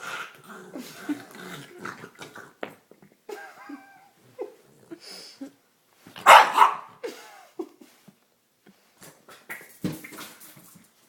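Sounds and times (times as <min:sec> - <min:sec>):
dog barking outburst: 0:06.2 - 0:06.9.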